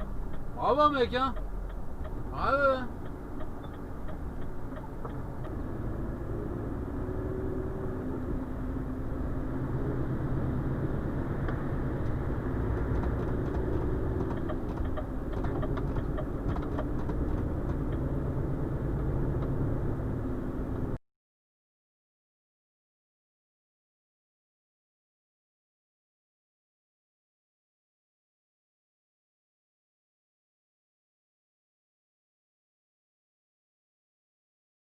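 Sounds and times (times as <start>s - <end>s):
diesel truck engine running: 0.0s - 21.0s
road rumble: 0.0s - 21.0s.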